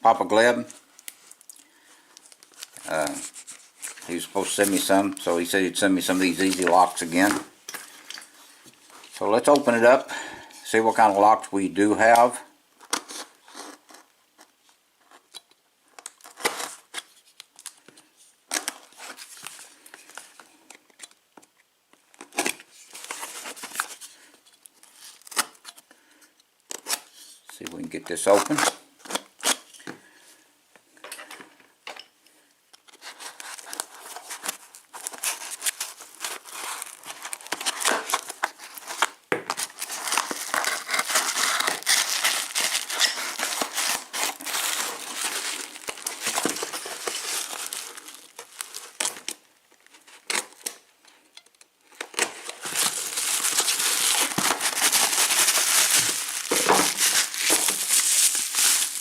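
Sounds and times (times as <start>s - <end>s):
packing material crinkling and tearing: 0.6s - 9.9s, 16.0s - 21.1s, 22.1s - 25.8s, 27.9s - 29.7s, 32.8s - 50.9s, 51.8s - 59.0s.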